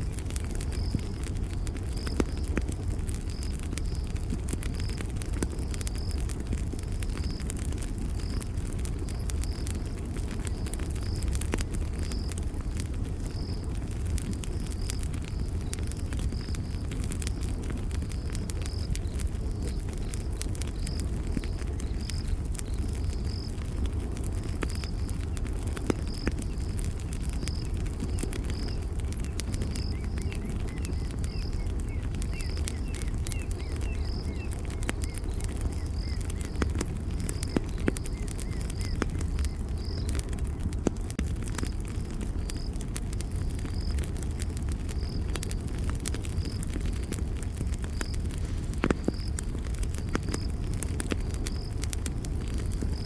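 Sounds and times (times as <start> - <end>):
faint bird twitters: 0.0 - 40.4, 41.4 - 53.0
campfire crackling and popping: 0.0 - 53.0
cricket chirping: 14.3 - 25.2, 25.8 - 40.2, 41.4 - 53.0.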